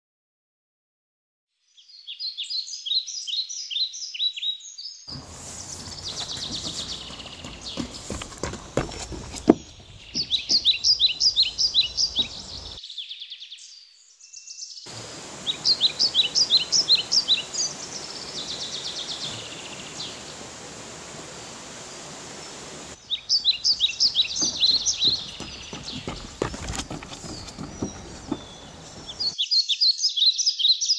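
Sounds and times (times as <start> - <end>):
birds whistling downward notes: 4.8 - 8.5, 9.4 - 30.9
steady background hiss: 5.1 - 12.8, 14.9 - 25.8.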